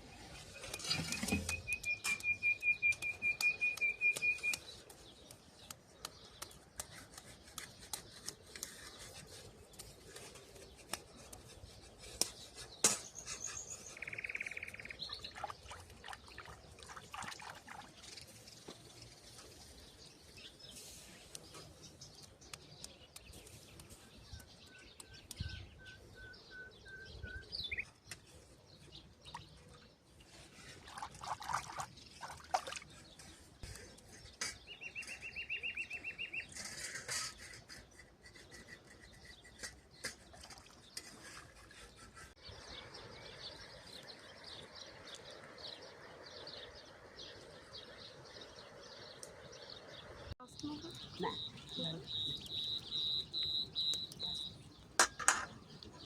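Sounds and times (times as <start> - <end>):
small birds chirping: 0.0 - 31.1, 31.7 - 56.0
steady rustling rhythm: 50.4 - 56.0
high bird trill: 50.5 - 56.0
scattered clicks and knocks: 53.1 - 56.0.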